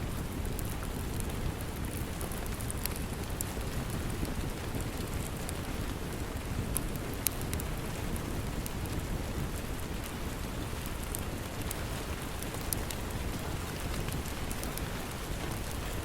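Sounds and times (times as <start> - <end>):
steady rain: 0.0 - 16.0
wood fire crackling: 0.0 - 16.0.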